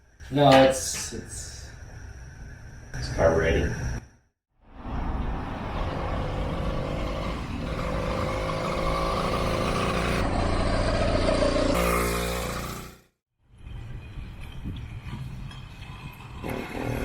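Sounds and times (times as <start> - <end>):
small motorbike engine running: 5.8 - 13.1, 15.9 - 17.0.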